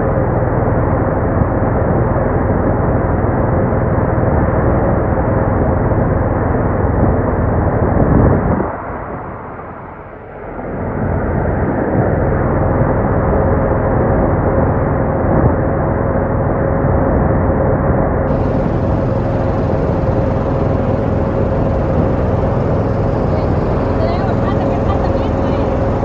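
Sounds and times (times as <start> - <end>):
boat engine humming: 18.3 - 26.0.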